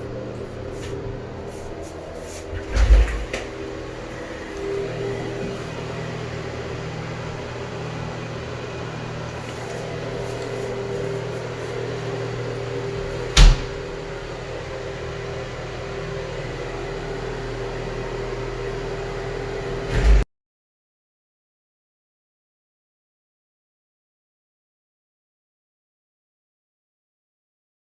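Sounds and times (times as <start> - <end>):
steady motor hum: 0.0 - 20.2.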